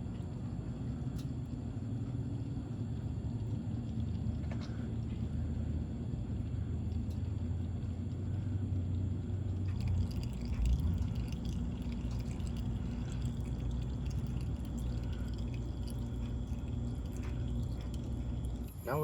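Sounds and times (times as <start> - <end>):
small drips and ticks: 0.0 - 19.0
steady low rumble: 0.0 - 19.0
oil pouring into a pan: 9.6 - 18.4.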